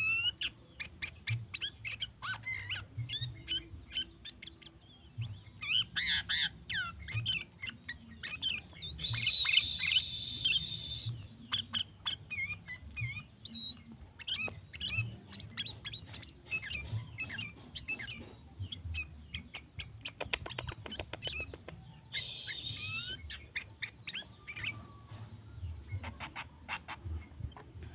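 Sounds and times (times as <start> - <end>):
bird chirps and whistles: 0.0 - 25.0
quick run of ticks: 20.0 - 21.8.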